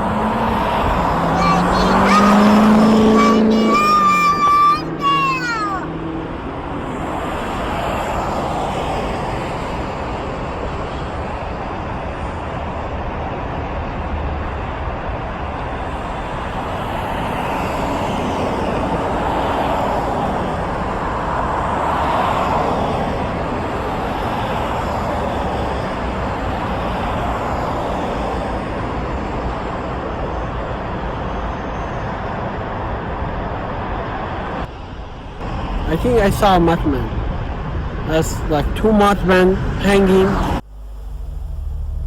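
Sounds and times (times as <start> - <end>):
vehicle passing: 0.0 - 10.1, 33.9 - 42.0
traffic noise: 0.0 - 42.0.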